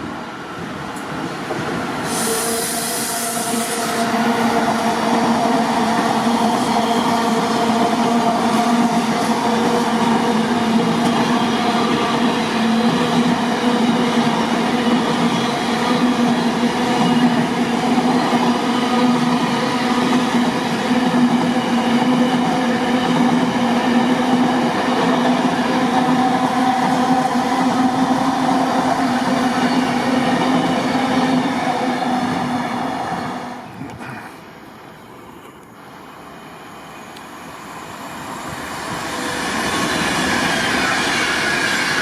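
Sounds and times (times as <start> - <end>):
train engine drone: 0.0 - 42.0
wheels rushing on rails: 35.4 - 42.0.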